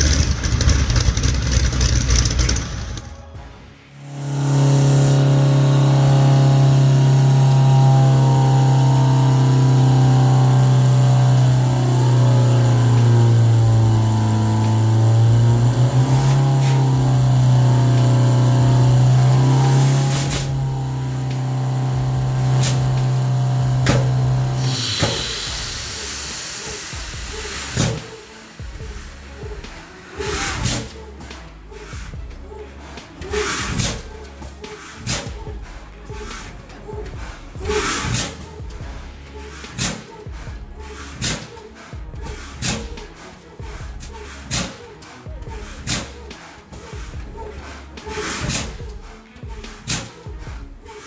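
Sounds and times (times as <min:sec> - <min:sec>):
deep steam whistle blowing: 0:03.4 - 0:31.3.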